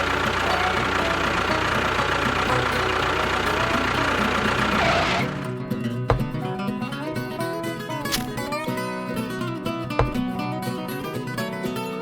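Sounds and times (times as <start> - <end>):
engine running: 0.0 - 6.6.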